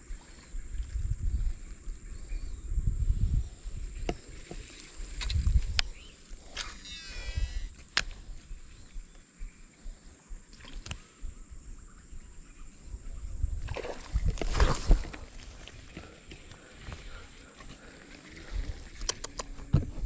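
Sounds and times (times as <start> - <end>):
high-pitched insect drone: 1.2 - 10.5
sharp clicks: 5.2 - 8.2, 19.0 - 19.6.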